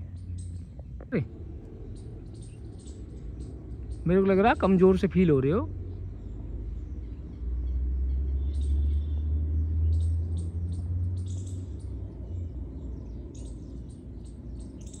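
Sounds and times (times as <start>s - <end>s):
birds chirping: 0.0s - 15.0s
low rumble on microphone: 0.0s - 15.0s.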